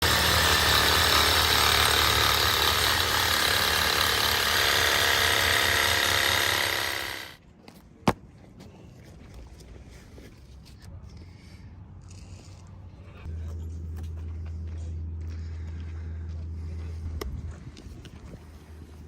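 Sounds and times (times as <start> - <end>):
power tool running: 0.0 - 7.4.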